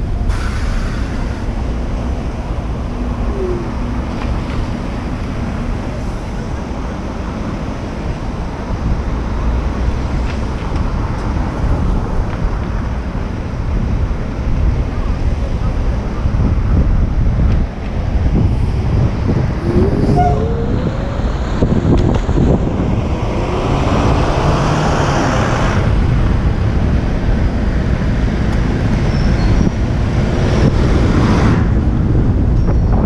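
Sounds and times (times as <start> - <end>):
street traffic: 0.0 - 33.0
wind rumble on microphone: 0.0 - 33.0
vehicle passing: 18.5 - 25.9.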